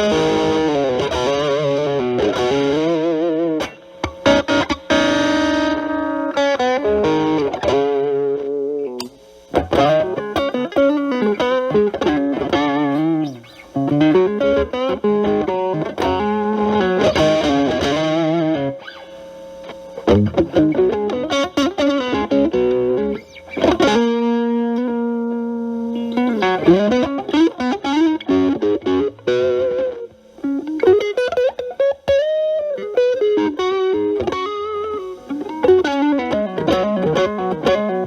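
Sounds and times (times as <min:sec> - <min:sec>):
distorted electric guitar lead: 0:00.0 - 0:38.0.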